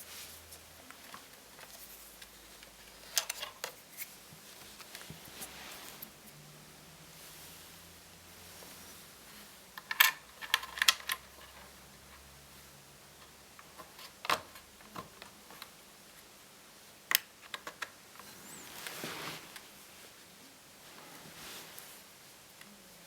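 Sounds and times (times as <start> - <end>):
soft rustle: 0.0 - 9.7, 18.1 - 23.0
laptop parts clicking and tapping: 17.1 - 18.0.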